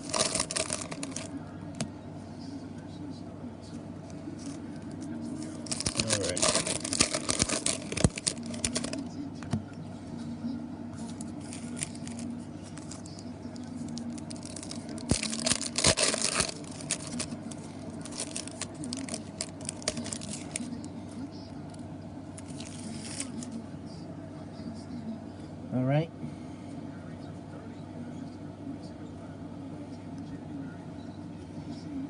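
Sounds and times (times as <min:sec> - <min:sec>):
wrappers torn and crinkled: 0:00.0 - 0:01.3, 0:05.4 - 0:09.1, 0:11.1 - 0:20.8, 0:22.4 - 0:23.5
cards being handled: 0:00.0 - 0:01.9, 0:04.2 - 0:09.6, 0:11.0 - 0:20.9, 0:22.4 - 0:23.6.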